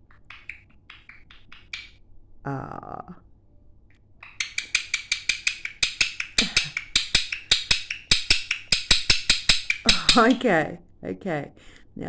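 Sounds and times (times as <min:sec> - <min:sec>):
gecko chirping clicks: 0:00.0 - 0:02.0, 0:04.2 - 0:10.5.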